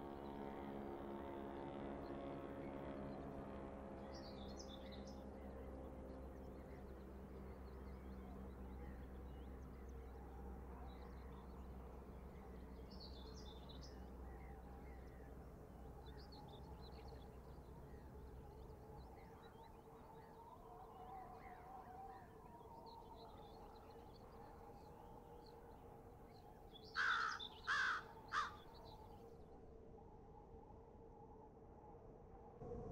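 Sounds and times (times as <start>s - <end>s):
birds chirping: 10.8s - 29.2s
low steady rumble: 32.5s - 32.9s.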